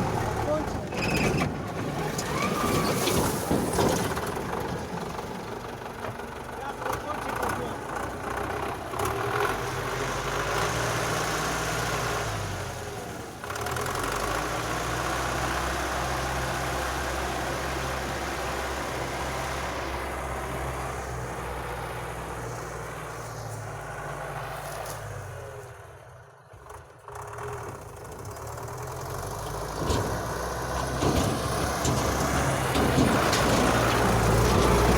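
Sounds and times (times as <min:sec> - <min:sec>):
truck engine running: 0:25.2 - 0:34.9.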